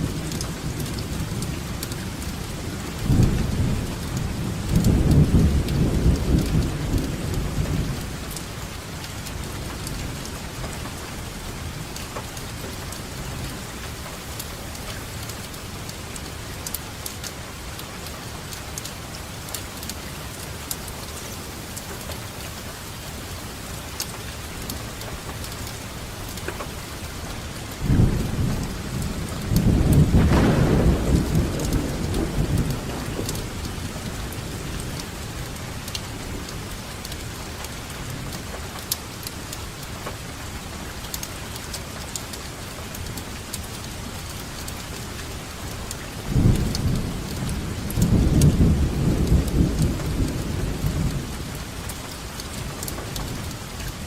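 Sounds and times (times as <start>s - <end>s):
steady rainfall: 0.0s - 54.0s
thunder rumbling: 0.1s - 8.3s, 27.7s - 36.9s, 46.1s - 51.9s
water drips ticking: 0.1s - 54.0s.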